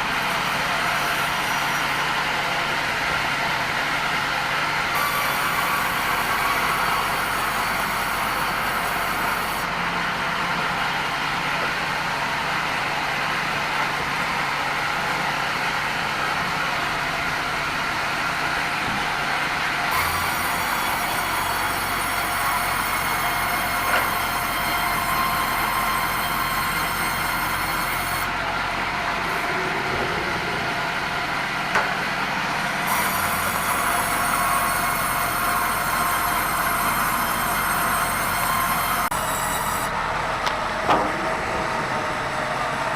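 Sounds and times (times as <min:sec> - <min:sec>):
band saw cutting wood: 0:00.0 - 0:02.6, 0:04.9 - 0:09.7, 0:19.9 - 0:40.0.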